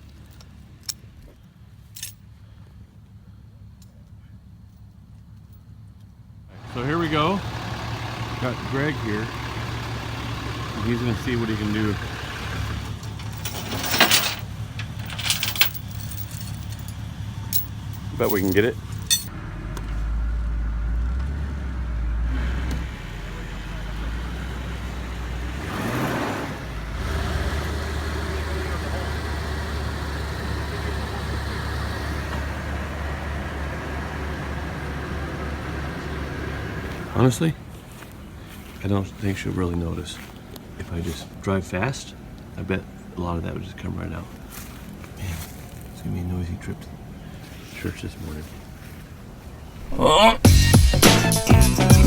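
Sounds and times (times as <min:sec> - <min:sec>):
vehicle engine idling: 0:00.0 - 0:21.1, 0:21.9 - 0:25.6, 0:26.8 - 0:52.0
metallic clinking and rattling: 0:01.9 - 0:02.2, 0:12.9 - 0:19.3.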